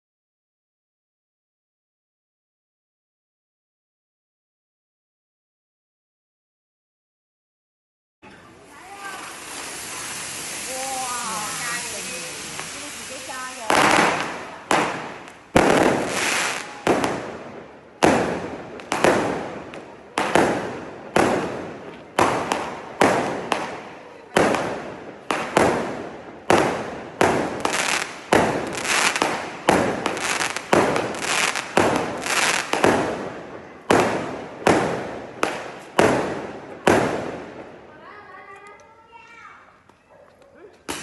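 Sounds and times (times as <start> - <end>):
firework cake bangs: 12.6 - 37.7.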